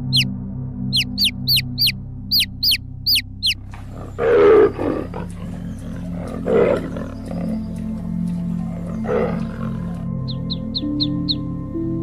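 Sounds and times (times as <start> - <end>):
background music with held notes: 0.0 - 12.0
animal growling roar: 3.7 - 10.1.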